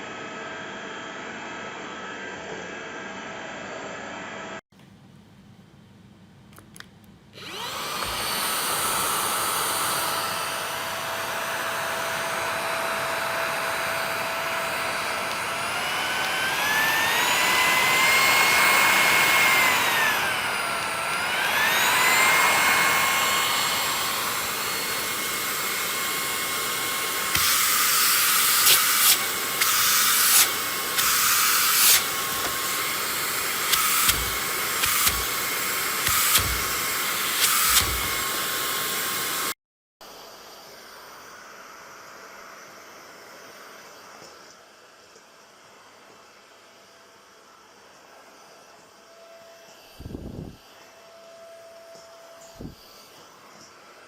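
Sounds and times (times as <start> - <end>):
stick vacuum whining: 7.4 - 39.6.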